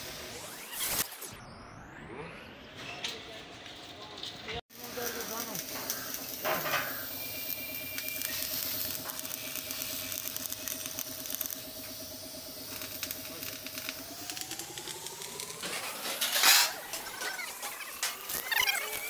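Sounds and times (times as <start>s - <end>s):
motor running: 4.8s - 19.0s.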